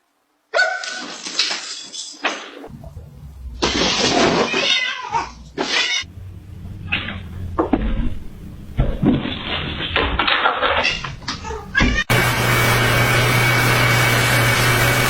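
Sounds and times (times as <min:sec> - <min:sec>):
pet animal crying out: 0:03.8 - 0:06.1, 0:10.6 - 0:12.1.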